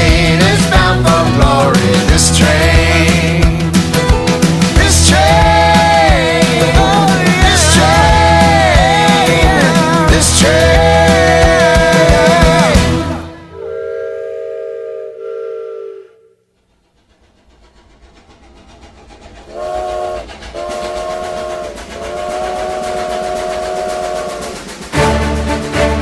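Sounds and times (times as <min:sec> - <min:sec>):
train rumbling and clattering: 0:00.0 - 0:13.8, 0:16.4 - 0:26.0
train whistle blasts: 0:10.5 - 0:16.5, 0:19.5 - 0:25.2.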